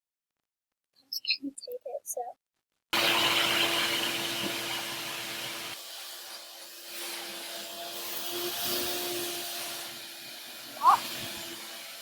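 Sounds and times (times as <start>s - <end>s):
machine humming and hissing: 3.0s - 7.7s.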